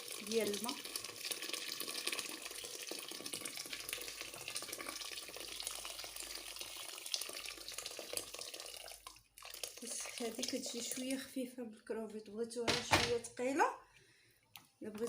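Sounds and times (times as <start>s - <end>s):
water pouring into a pot: 0.0s - 11.3s.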